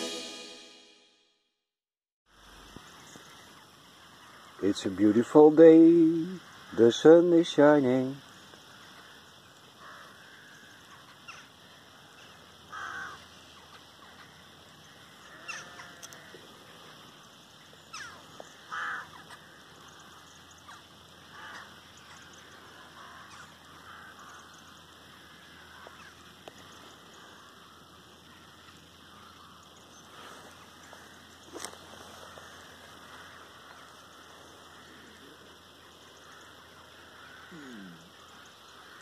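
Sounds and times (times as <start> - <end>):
faint bird calls: 2.7 - 39.0.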